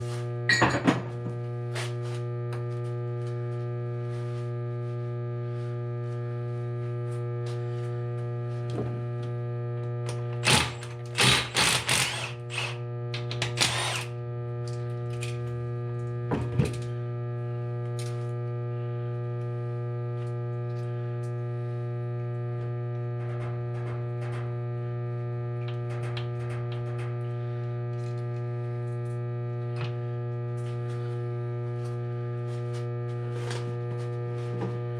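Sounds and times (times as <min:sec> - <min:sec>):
electrical hum: 0:00.1 - 0:34.9
ratchet clicks and rattles: 0:10.4 - 0:14.1.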